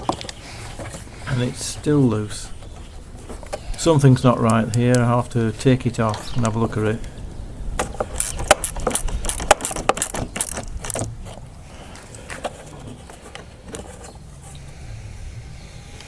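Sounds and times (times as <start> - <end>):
spanner clicking on metal clamp: 8.1 - 11.1.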